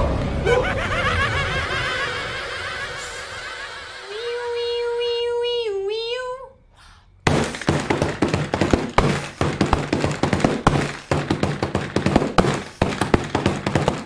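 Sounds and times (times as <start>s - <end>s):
sharp taps and clicks: 7.3s - 14.0s.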